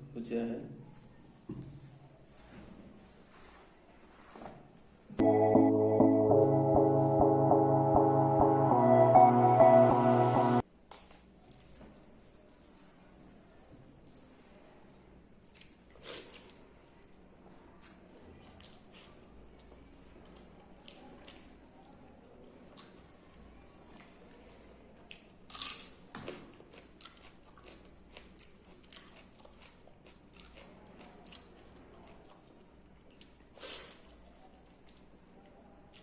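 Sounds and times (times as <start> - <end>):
soft eating clicks and squishes: 10.9 - 36.0
person chewing food: 25.1 - 35.1.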